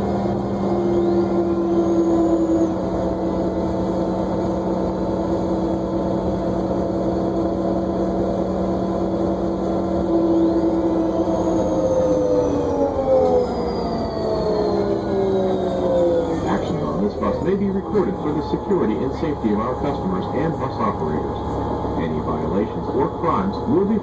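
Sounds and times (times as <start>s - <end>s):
bus engine and drivetrain drone: 0.0s - 24.0s
drivetrain whine: 0.0s - 24.0s
road noise: 0.0s - 24.0s.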